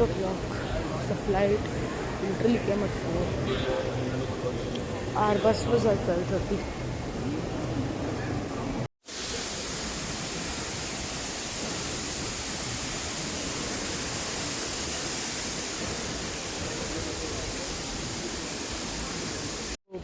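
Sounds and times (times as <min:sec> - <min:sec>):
steady hiss: 0:09.1 - 0:19.8.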